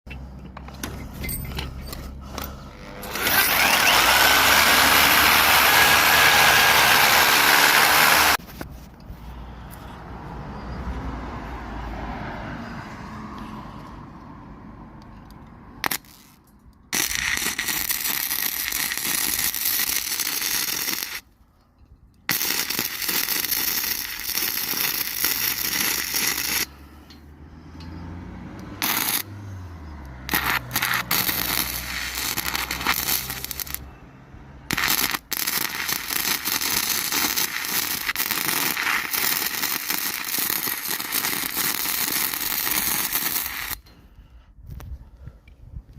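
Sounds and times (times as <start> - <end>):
quiet work sounds: 0.1 - 10.9, 15.0 - 45.9
power tool motor running: 2.7 - 8.4.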